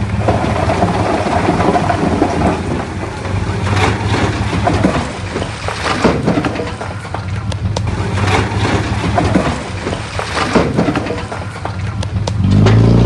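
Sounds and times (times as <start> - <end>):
bulldozer diesel engine: 0.0 - 13.0
rocks and soil grinding: 0.0 - 13.0
sharp knocks of stones: 3.7 - 12.9.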